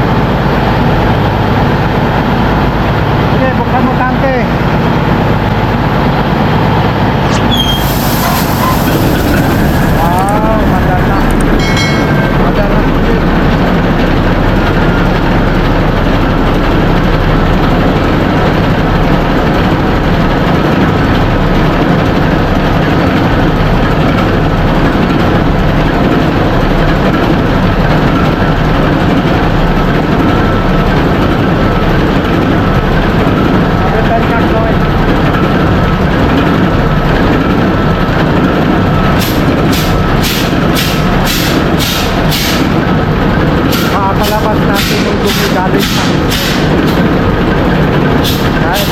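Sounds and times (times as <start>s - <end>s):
engine-room machinery din: 0.0s - 48.9s
rhythmic hissing pulse: 7.4s - 14.0s.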